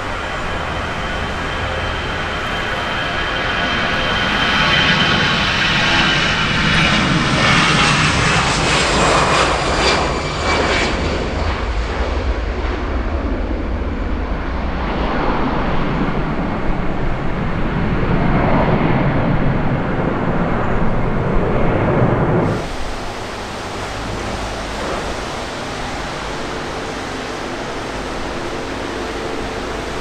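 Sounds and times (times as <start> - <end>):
jet airliner engines passing: 0.0 - 30.0.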